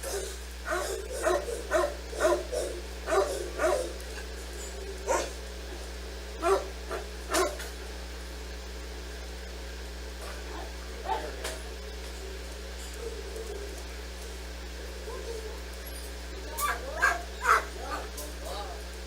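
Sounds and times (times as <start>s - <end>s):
dog barking: 0.0s - 5.4s, 6.4s - 7.7s, 10.2s - 11.7s, 14.9s - 15.7s, 16.4s - 18.8s.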